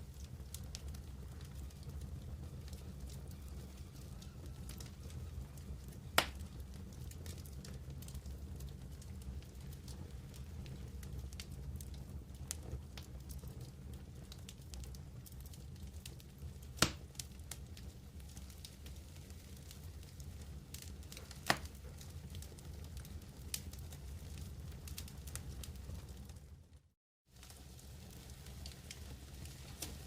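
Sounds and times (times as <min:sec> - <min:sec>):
campfire crackling: 0:00.0 - 0:26.5, 0:27.3 - 0:30.0
fire popping loudly: 0:00.1 - 0:07.9, 0:09.6 - 0:22.9.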